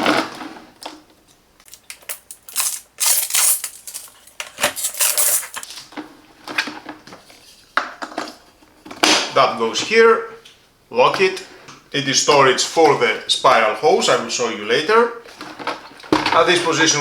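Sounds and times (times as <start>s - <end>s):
plastic vacuum parts knocking and rattling: 1.6s - 9.4s, 15.3s - 17.0s.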